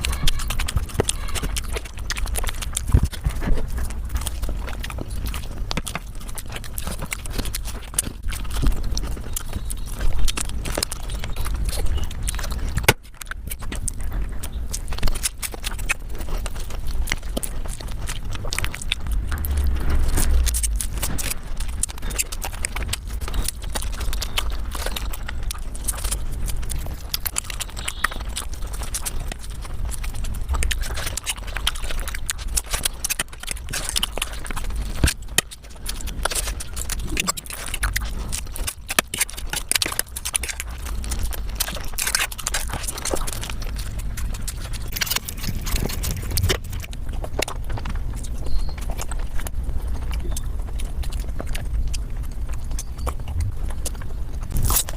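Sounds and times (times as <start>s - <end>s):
sped up chewing and smacking: 0.0s - 54.9s
low rumble: 16.2s - 26.9s, 42.4s - 54.9s.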